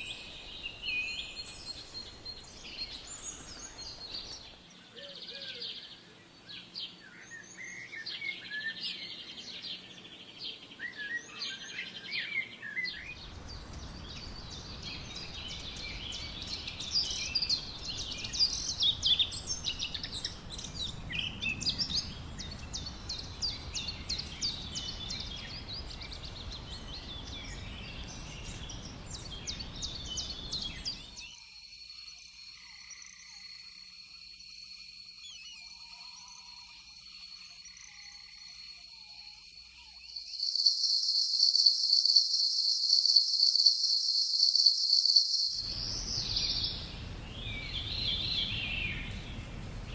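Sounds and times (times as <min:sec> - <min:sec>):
forest birds singing: 0:00.0 - 0:49.9
high insect-like drone: 0:32.5 - 0:46.9
steady rushing noise: 0:45.6 - 0:49.9.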